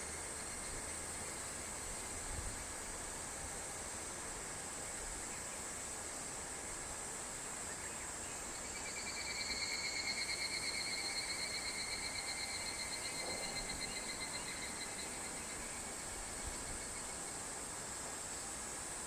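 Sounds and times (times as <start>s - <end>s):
high insect hiss: 0.0s - 19.0s
cicada pulsing trill: 8.4s - 17.4s.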